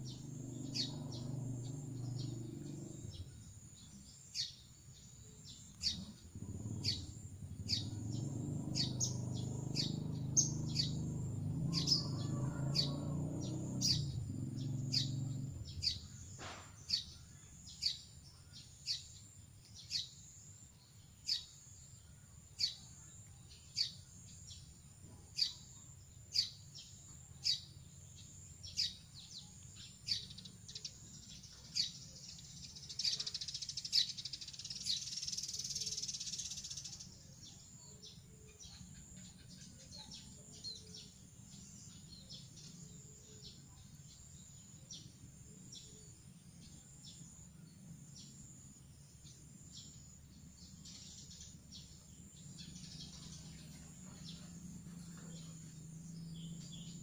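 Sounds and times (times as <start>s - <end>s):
bird chirping: 0.0s - 57.0s
low droning hum: 40.5s - 57.0s.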